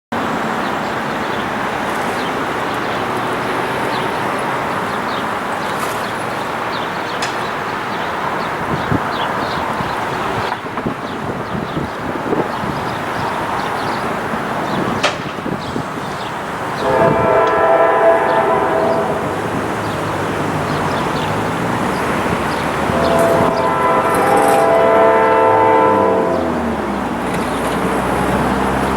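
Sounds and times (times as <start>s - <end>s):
train wheels on rail: 0.2s - 28.9s
locomotive air horn blast: 16.7s - 20.0s, 22.6s - 27.1s.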